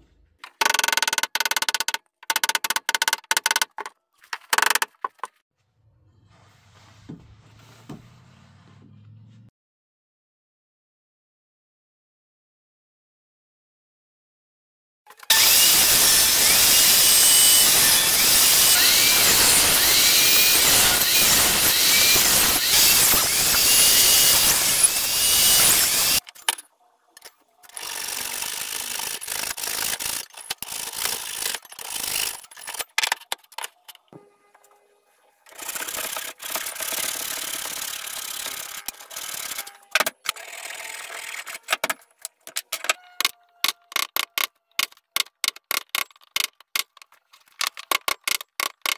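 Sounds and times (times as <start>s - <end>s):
tool cutting wood: 0.4s - 3.9s, 15.1s - 26.3s, 27.6s - 33.4s, 35.5s - 47.0s
rasping cutting: 15.3s - 26.2s.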